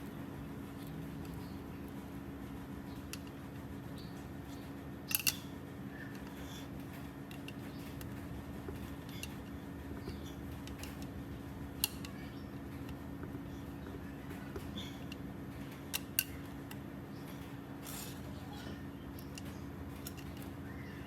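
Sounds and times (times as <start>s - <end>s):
steady low hum: 0.0s - 21.0s
sharp clicks: 4.1s - 18.0s.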